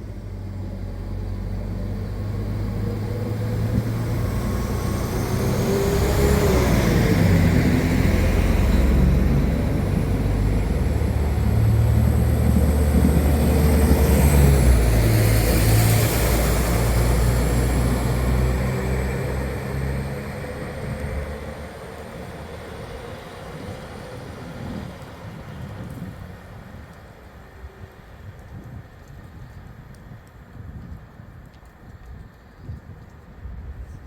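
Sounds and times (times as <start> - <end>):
train diesel engines rumbling: 0.0 - 25.2.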